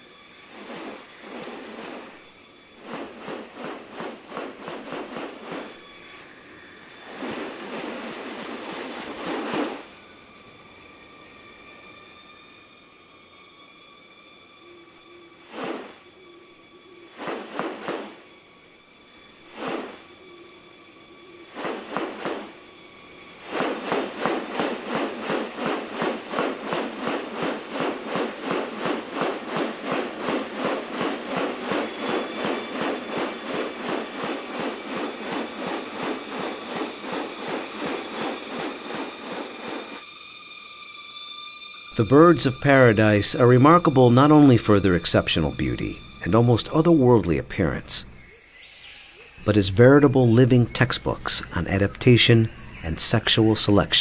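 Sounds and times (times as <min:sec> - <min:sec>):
insects droning: 0:00.0 - 0:54.0
fast even pulsing: 0:19.5 - 0:20.1, 0:21.6 - 0:22.6, 0:23.4 - 0:40.0.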